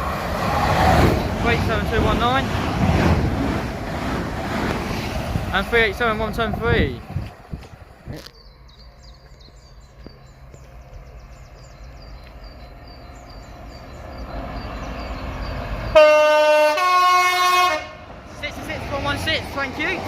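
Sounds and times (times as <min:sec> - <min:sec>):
train rumbling: 0:00.0 - 0:20.0
two-tone train horn: 0:15.9 - 0:18.0.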